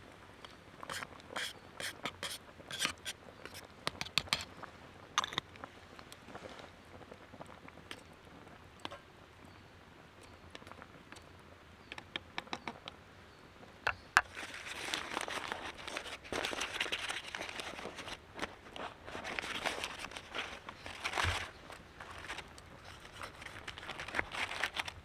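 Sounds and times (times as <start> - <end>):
small clicks and taps: 11.9 - 13.0
crinkly rustling and crunching: 14.2 - 25.0.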